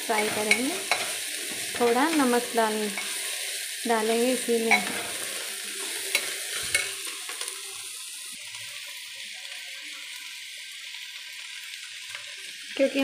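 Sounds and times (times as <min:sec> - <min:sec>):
vegetables sizzling in a pot: 0:00.0 - 0:13.0
steel spoon clinking on a pot: 0:00.2 - 0:01.2, 0:06.1 - 0:07.0.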